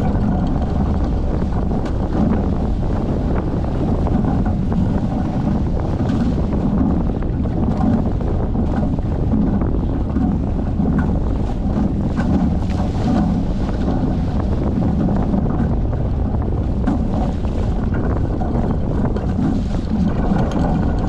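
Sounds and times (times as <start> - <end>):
boat knocks and rattles: 0.0 - 21.0
water rushing along hulls: 0.0 - 21.0
wind buffeting microphone: 0.0 - 21.0.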